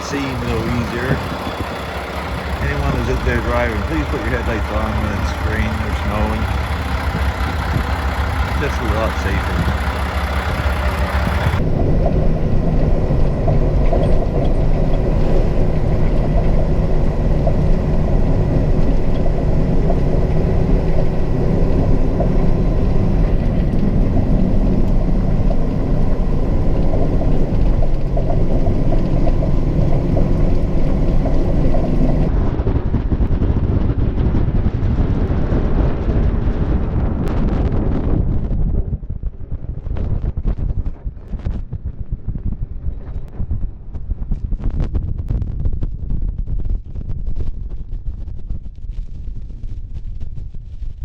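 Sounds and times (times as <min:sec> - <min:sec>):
faint whine: 0:00.0 - 0:32.4
truck engine rumble: 0:00.0 - 0:44.3.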